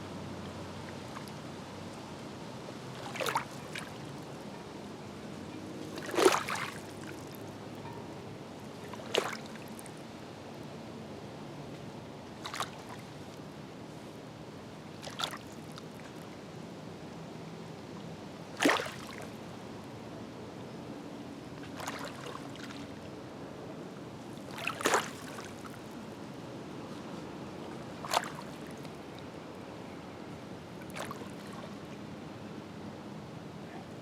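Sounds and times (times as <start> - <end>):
small waves splashing on shore: 0.0 - 7.8, 8.5 - 10.2, 11.6 - 16.4, 18.4 - 20.0, 21.3 - 29.6, 30.6 - 32.0
low wash of water: 0.0 - 34.0.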